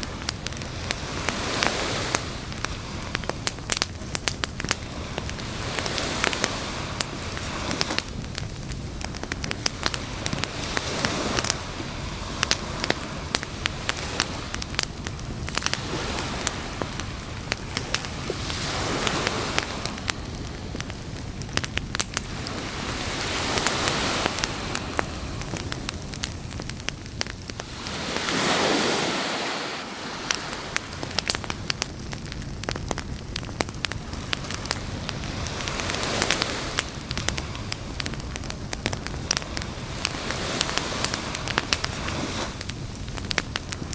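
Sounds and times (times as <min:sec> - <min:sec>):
campfire crackling and popping: 0:00.0 - 0:43.9
waves hissing: 0:09.6 - 0:31.8, 0:34.0 - 0:43.0.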